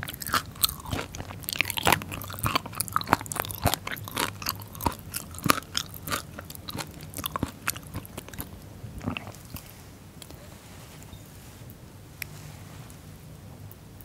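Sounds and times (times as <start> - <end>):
crisp chewing crackles: 0.0 - 10.4.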